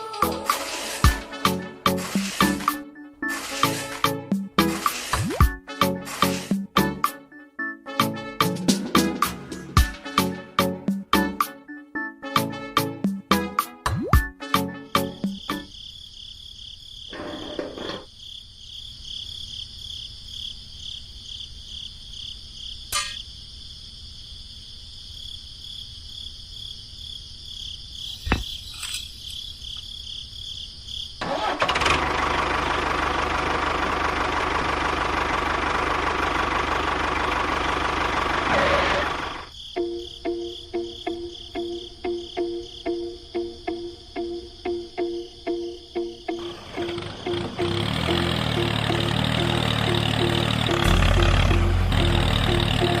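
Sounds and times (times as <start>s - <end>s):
small motor running: 3.3s - 4.0s, 46.5s - 53.0s.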